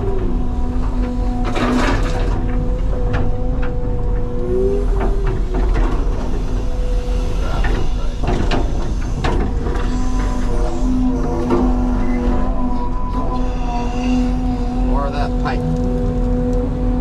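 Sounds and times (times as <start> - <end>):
excavator engine and hydraulics: 0.0 - 17.0.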